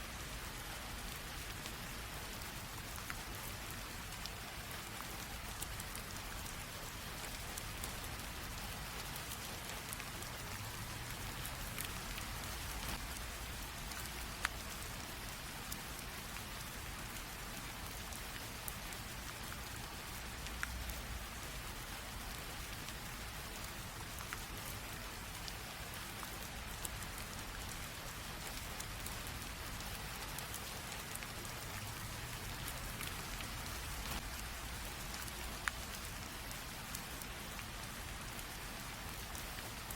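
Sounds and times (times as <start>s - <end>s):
soft rain patter: 0.0s - 39.9s
single raindrops ticking: 5.1s - 15.1s, 23.6s - 39.9s.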